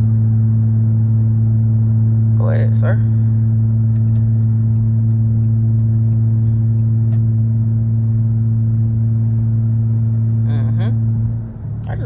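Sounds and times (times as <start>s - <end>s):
car engine droning: 0.0s - 12.0s
road noise: 0.0s - 12.0s
faint regular ticking: 3.9s - 7.3s.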